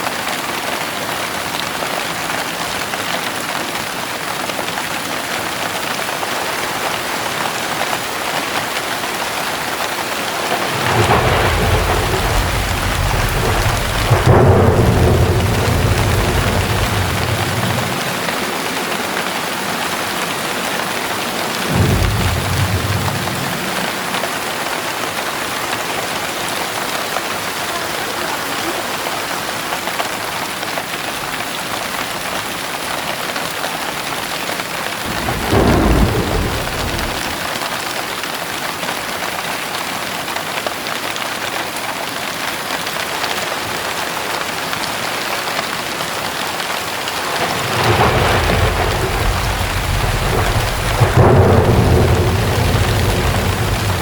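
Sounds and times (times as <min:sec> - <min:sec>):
heavy rain hissing: 0:02.1 - 0:38.0, 0:43.0 - 0:54.0
thunder rumbling: 0:10.0 - 0:26.3, 0:35.0 - 0:37.6, 0:47.1 - 0:54.0.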